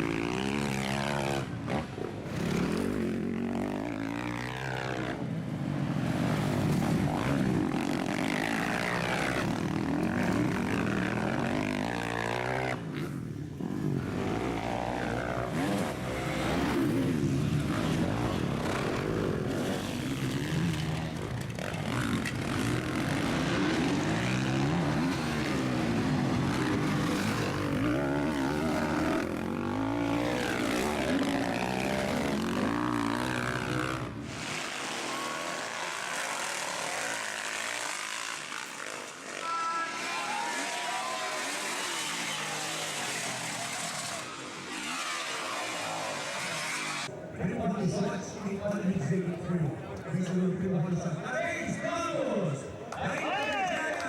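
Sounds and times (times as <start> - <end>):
motocross bikes revving: 0.0 - 52.9.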